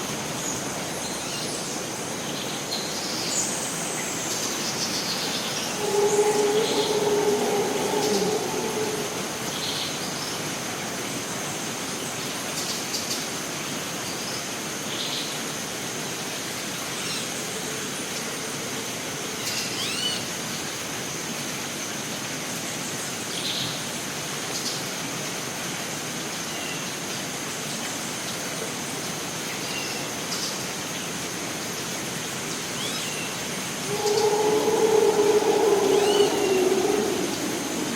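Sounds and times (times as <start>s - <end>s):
hiss of water: 0.0s - 37.9s
high-pitched drone: 5.8s - 9.5s, 33.9s - 37.9s
rising and falling bird whistle: 33.9s - 37.9s.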